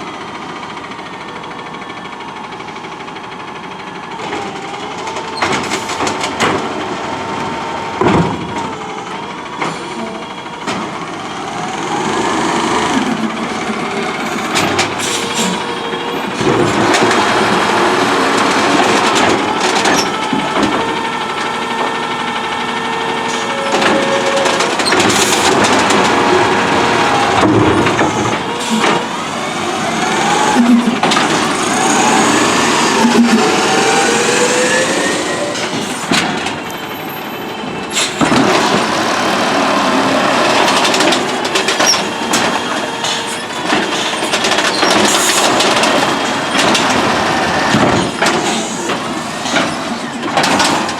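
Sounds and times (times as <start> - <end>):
garbage truck engine: 0.0 - 50.9
knocks and clanks: 8.0 - 8.8, 12.0 - 34.4, 37.9 - 50.9
hydraulic whine: 8.4 - 50.9.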